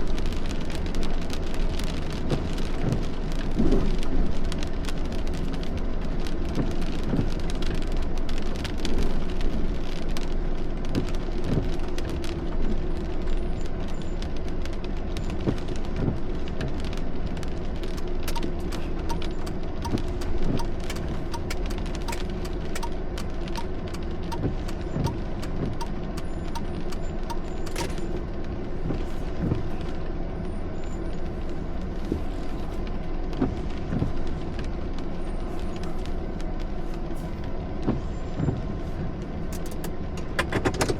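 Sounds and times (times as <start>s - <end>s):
low road hum: 0.0s - 40.9s
rain drops hitting: 0.0s - 40.9s
faint regular tick: 17.8s - 28.0s.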